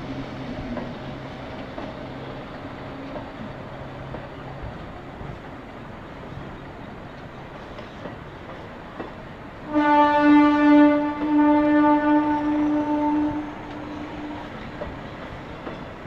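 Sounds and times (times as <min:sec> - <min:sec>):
train wheels rumbling on rails: 0:00.0 - 0:16.0
train horn long note: 0:09.6 - 0:14.9.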